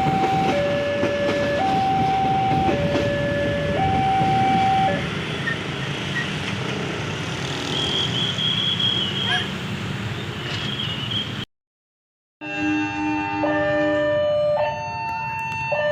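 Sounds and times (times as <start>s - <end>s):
two-tone warning signal: 0.0s - 5.6s, 12.4s - 15.9s
train rumbling: 0.0s - 7.6s.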